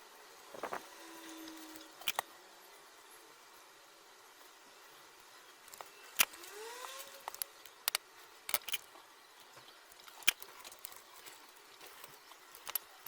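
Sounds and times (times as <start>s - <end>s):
clicks of small hard objects: 5.7s - 13.0s.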